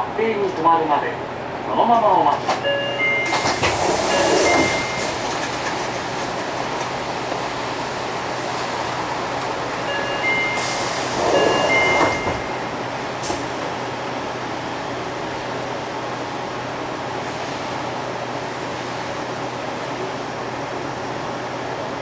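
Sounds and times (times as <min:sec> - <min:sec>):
beeping door chime: 0:02.6 - 0:05.3, 0:09.8 - 0:12.9
pneumatic doors hissing: 0:03.2 - 0:06.1, 0:10.4 - 0:13.6.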